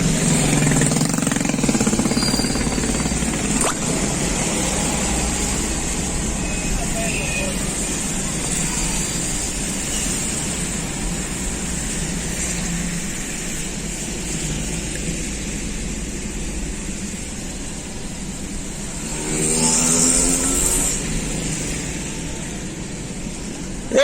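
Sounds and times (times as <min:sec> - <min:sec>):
traffic on wet road: 0:00.0 - 0:24.0
vehicle engine revving: 0:18.4 - 0:22.2.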